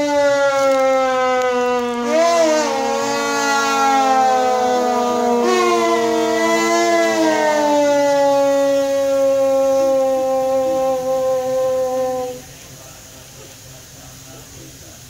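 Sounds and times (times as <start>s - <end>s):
wind instrument slow melody: 0.0s - 12.5s
steady drone: 0.0s - 15.0s.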